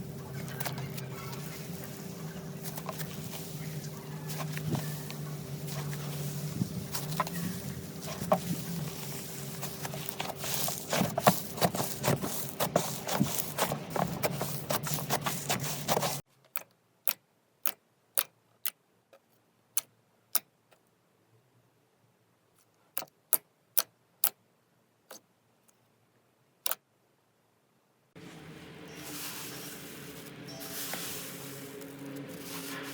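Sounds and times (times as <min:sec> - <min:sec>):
steady hum: 0:00.0 - 0:16.2.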